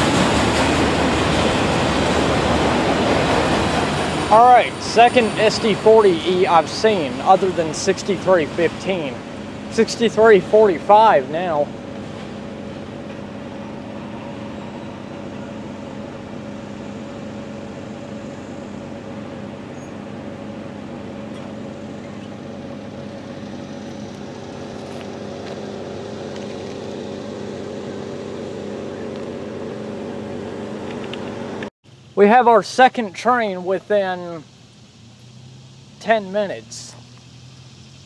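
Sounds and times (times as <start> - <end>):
train wheels rumbling on rail: 0.0 - 31.7
steady drone: 0.0 - 38.0.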